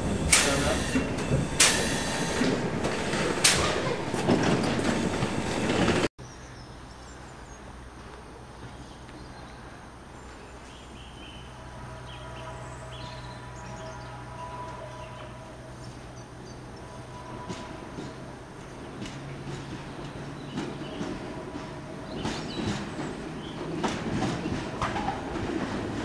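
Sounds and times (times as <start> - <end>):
approaching train hum: 0.0 - 6.1, 6.7 - 26.0
electric train running: 0.0 - 6.1
train wheel clacks: 0.0 - 6.1, 16.8 - 26.0.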